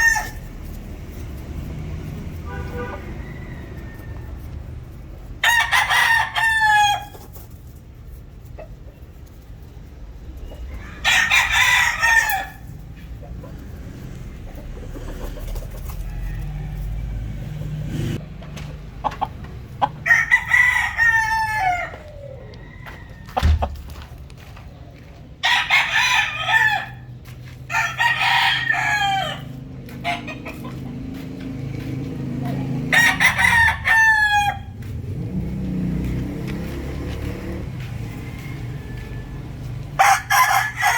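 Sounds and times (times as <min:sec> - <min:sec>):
roosters crowing: 0:00.0 - 0:09.4, 0:10.1 - 0:18.2, 0:18.9 - 0:24.4, 0:25.4 - 0:40.9.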